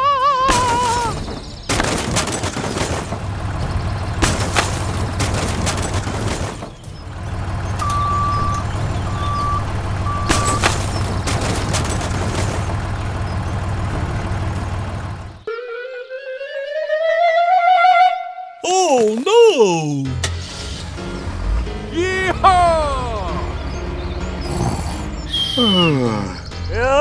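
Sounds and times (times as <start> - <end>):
vehicle engine running: 7.0 - 15.4
reversing alarm beeps: 7.8 - 10.9.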